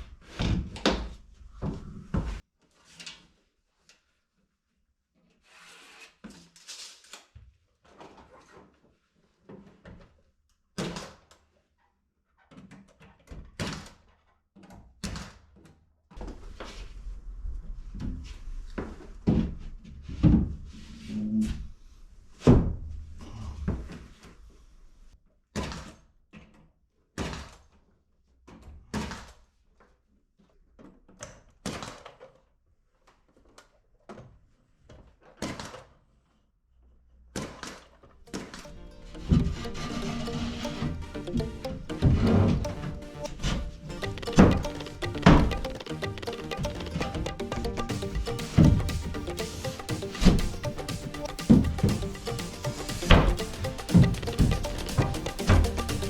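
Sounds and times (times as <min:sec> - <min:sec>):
knocks and thumps: 0:39.3 - 0:56.0.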